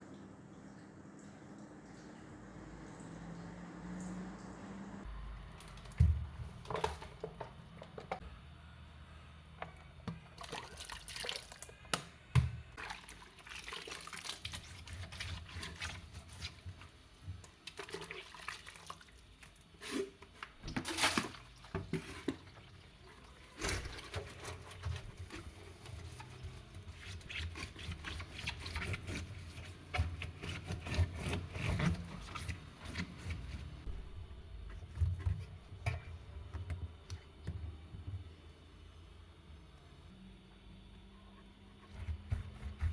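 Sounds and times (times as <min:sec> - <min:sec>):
liquid pouring and splashing: 0:10.3 - 0:11.9, 0:12.8 - 0:16.5, 0:17.6 - 0:25.4.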